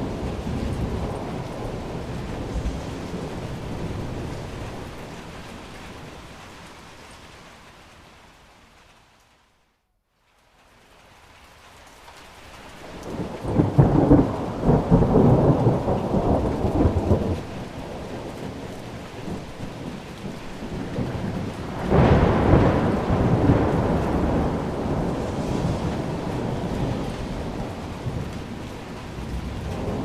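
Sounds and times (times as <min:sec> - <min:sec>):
thunder rolling: 0:00.0 - 0:06.5, 0:12.9 - 0:30.0
steady rain: 0:00.0 - 0:30.0.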